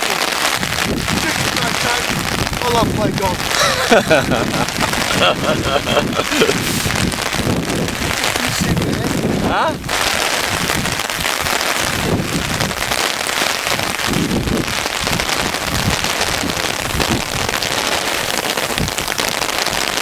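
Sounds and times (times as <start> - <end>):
hail falling heavily: 0.0 - 20.0.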